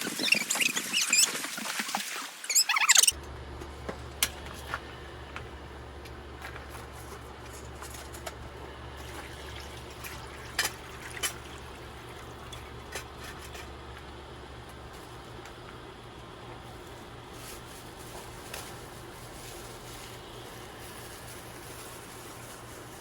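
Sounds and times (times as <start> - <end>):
stream water running: 0.0 - 3.1, 9.0 - 13.0.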